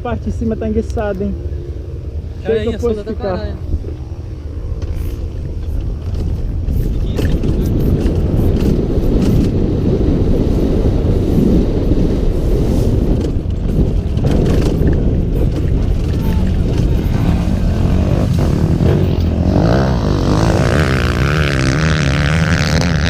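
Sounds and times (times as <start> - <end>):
motorcycle engine running hard: 4.8 - 23.0
knocks and rattles: 13.2 - 19.4.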